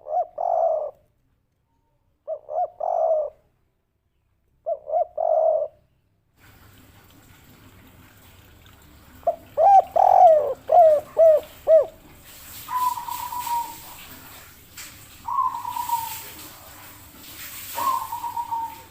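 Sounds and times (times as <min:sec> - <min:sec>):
dove cooing: 0:00.0 - 0:01.0, 0:02.2 - 0:03.4, 0:04.6 - 0:05.8, 0:09.2 - 0:12.1, 0:12.7 - 0:14.4, 0:15.2 - 0:16.9, 0:17.7 - 0:18.9.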